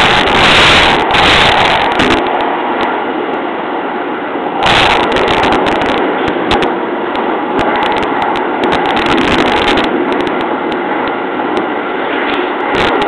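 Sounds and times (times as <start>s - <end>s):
wheels rumbling on rail: 0.0s - 13.0s
sharp clicks and rattles: 4.6s - 13.0s.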